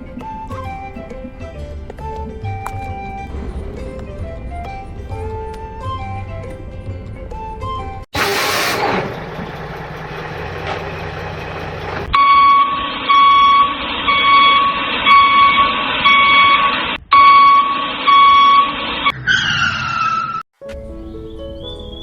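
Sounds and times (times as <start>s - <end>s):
low hum: 0.0s - 14.2s
hissing noise: 8.2s - 9.1s
electronic reversing beeps: 12.1s - 20.4s.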